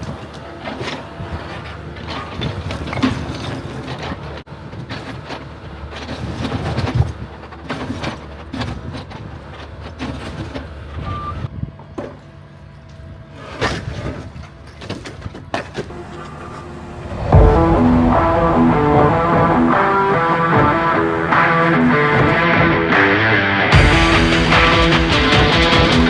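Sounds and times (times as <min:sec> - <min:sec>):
demolition knocks and clatter: 0:00.0 - 0:16.2, 0:17.1 - 0:26.0
excavator diesel engine running: 0:14.2 - 0:26.0
guitar music: 0:16.6 - 0:26.0.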